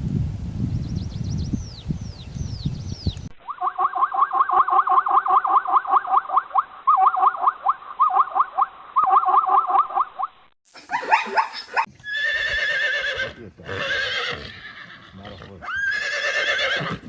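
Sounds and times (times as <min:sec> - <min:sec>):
animal chirping calls: 0:11.0 - 0:17.0.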